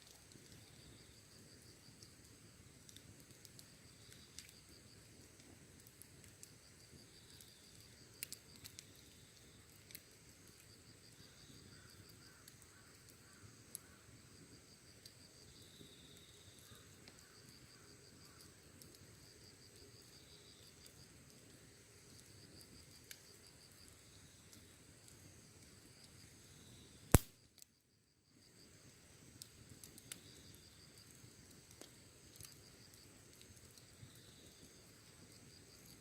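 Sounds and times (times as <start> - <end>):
wood fire crackling and popping: 0.0 - 26.5, 27.1 - 27.7, 28.8 - 36.0
insects trilling: 6.4 - 27.1, 28.4 - 36.0.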